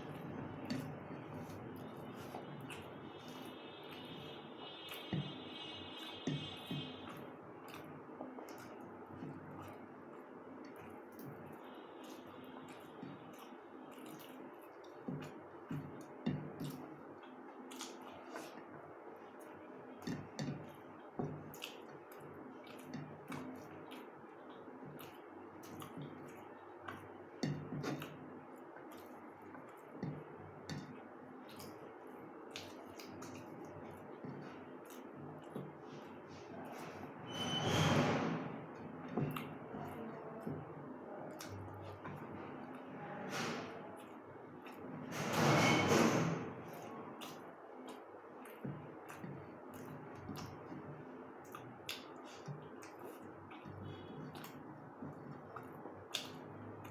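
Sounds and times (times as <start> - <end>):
wet chewing and lip smacks: 7.0 - 30.2, 30.8 - 36.9, 46.7 - 56.9.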